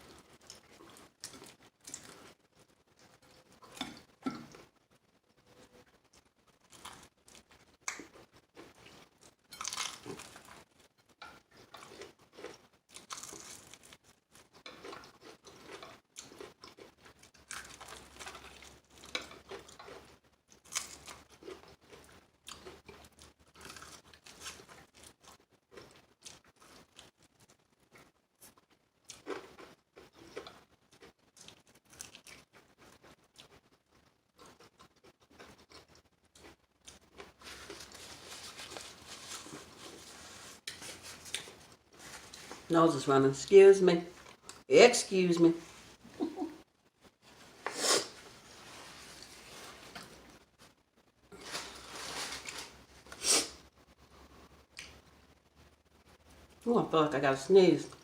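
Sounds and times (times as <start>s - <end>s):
crunching bites and chewing: 6.5s - 27.7s, 28.4s - 40.0s.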